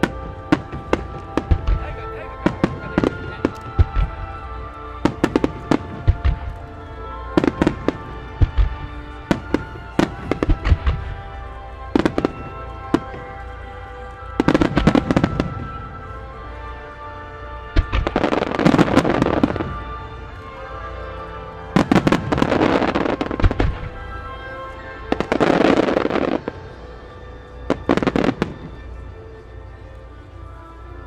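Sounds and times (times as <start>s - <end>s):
fireworks bangs: 0.0s - 16.2s, 17.8s - 20.4s, 21.2s - 24.4s, 25.0s - 26.8s
fireworks crackling: 0.0s - 31.0s
music with held tones: 0.0s - 31.0s.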